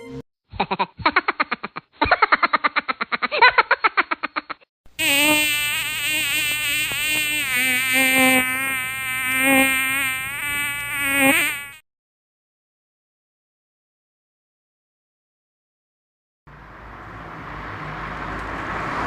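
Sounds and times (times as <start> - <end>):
loud wavering buzzing tone: 5.0 - 11.8.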